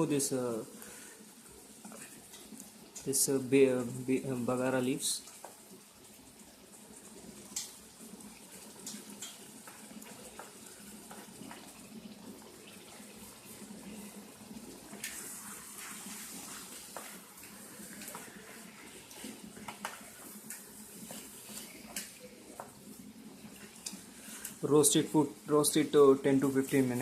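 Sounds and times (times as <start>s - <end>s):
chicken sizzling in oil: 0.0s - 27.0s.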